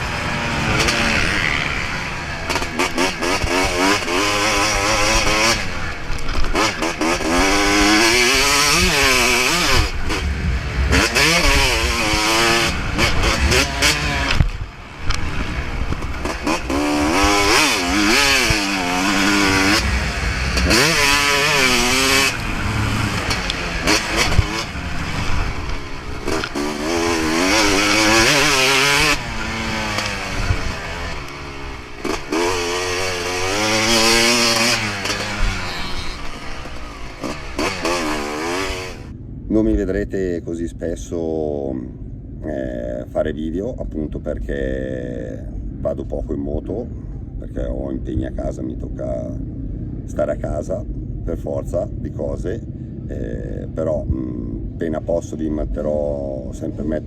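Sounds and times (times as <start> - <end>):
motocross bike engine revving: 0.0 - 39.1.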